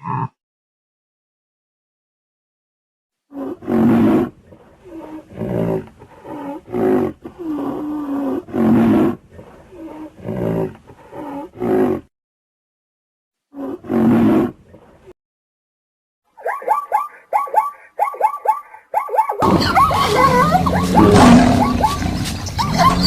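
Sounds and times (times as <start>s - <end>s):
animal roaring and grunting: 3.3s - 12.1s, 19.4s - 23.0s.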